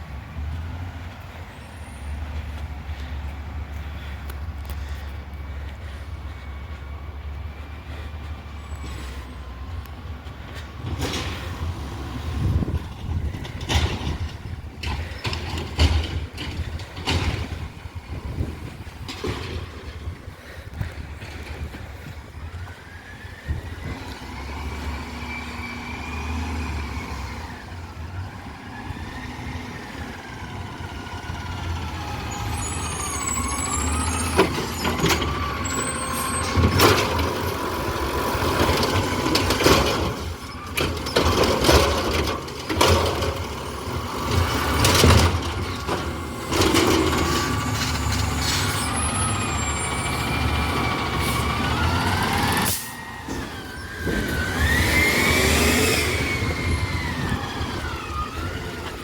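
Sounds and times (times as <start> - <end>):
garbage truck engine revving: 22.5 - 59.0.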